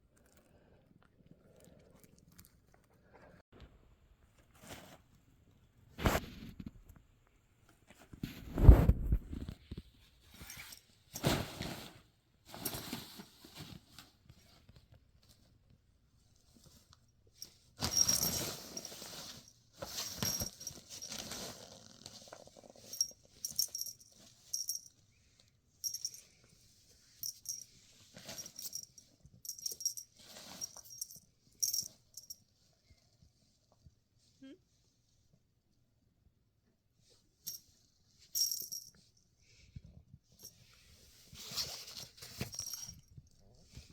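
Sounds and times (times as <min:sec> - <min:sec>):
rustling: 0:07.6 - 0:15.6, 0:16.2 - 0:25.0, 0:25.8 - 0:33.8, 0:40.3 - 0:43.9
small metallic jingling: 0:17.4 - 0:21.3, 0:22.8 - 0:25.0, 0:25.8 - 0:26.4, 0:27.2 - 0:32.4, 0:38.3 - 0:39.1, 0:42.2 - 0:43.3.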